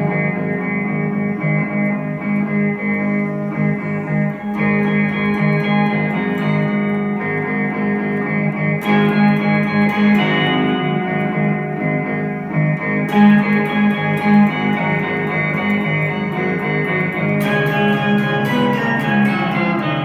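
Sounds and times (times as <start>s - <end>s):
ambient electric guitar notes: 0.0s - 20.0s.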